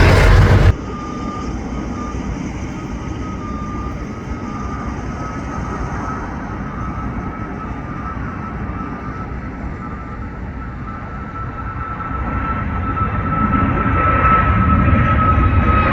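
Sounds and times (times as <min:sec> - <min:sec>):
faint high whine: 0:00.0 - 0:00.8
jet engines rumbling: 0:00.0 - 0:00.9.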